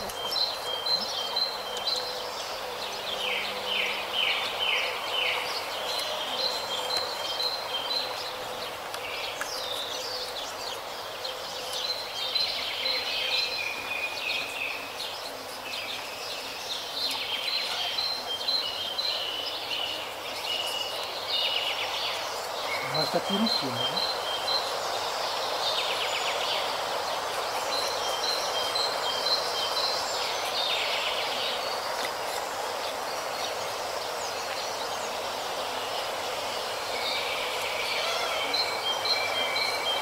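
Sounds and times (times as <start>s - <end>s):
outdoor background noise: 0.0s - 40.0s
small birds chirping: 0.0s - 40.0s.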